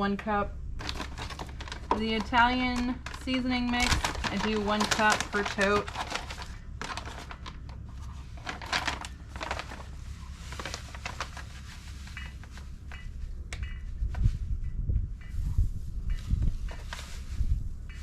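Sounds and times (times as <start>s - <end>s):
bag crinkling: 0.8s - 12.8s
dry herbs rustling and scraping: 0.8s - 13.3s, 15.3s - 18.0s.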